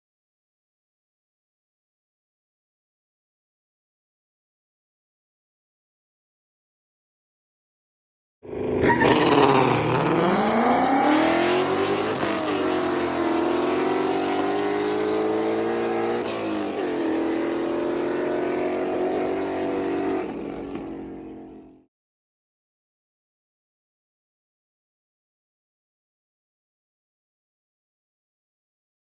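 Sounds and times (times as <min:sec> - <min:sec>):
car accelerating hard: 0:08.5 - 0:21.8.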